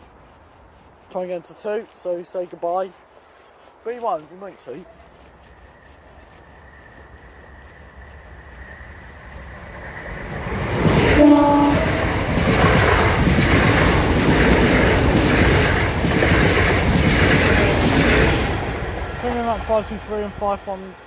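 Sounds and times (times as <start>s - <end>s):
electric train passing: 4.4s - 21.0s
wheels clattering over rails: 9.6s - 19.9s
train horn toot: 11.0s - 12.2s.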